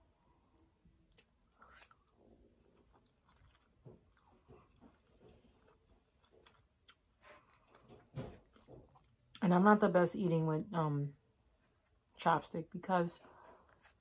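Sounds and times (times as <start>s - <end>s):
wet chewing with mouth closed: 0.4s - 9.4s.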